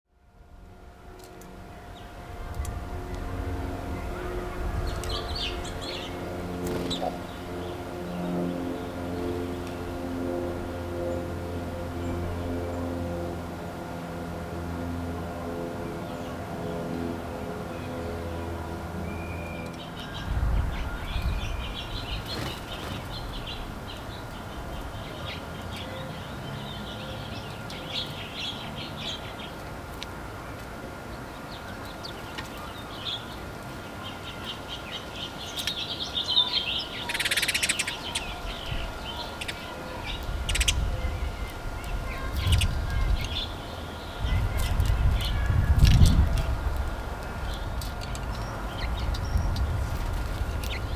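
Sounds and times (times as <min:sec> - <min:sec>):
songbirds chirping: 0:00.2 - 0:50.9
wing flaps: 0:06.5 - 0:07.3, 0:21.8 - 0:23.8.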